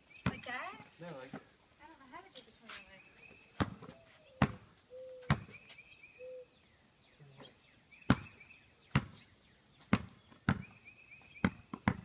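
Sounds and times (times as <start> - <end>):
basketball bouncing on hard ground: 0.2 - 1.5, 3.5 - 5.7, 8.0 - 12.0.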